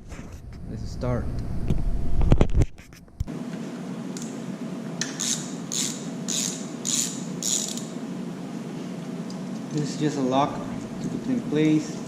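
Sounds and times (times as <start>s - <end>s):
socket ratchet clicking: 5.0s - 7.9s.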